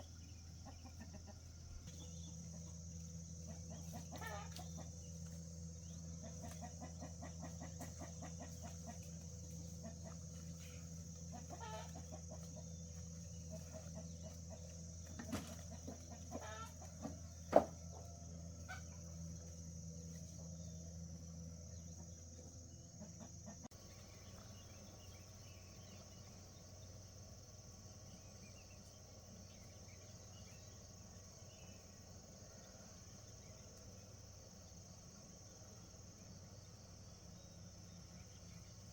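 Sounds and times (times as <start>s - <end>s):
insects chirring: 0.0s - 38.9s
chickens clucking: 0.2s - 5.4s, 6.1s - 19.1s.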